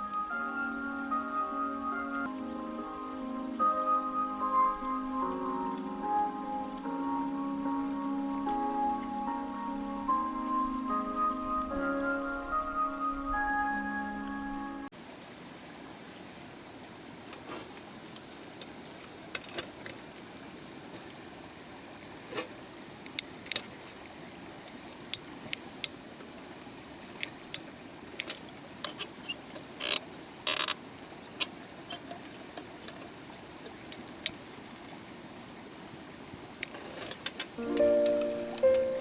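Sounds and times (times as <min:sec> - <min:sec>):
stream running: 0:00.0 - 0:39.0
sharp clicks and clinks: 0:36.6 - 0:39.0.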